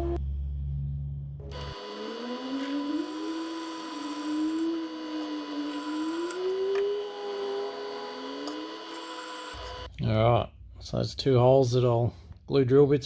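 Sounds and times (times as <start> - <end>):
low hum: 0.0 - 8.6
electric drill boring metal: 1.5 - 9.9.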